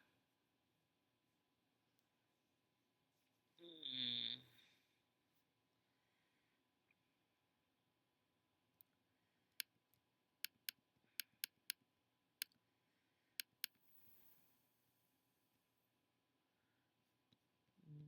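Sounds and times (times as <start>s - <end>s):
computer mouse clicking: 10.4s - 11.8s, 13.4s - 13.8s.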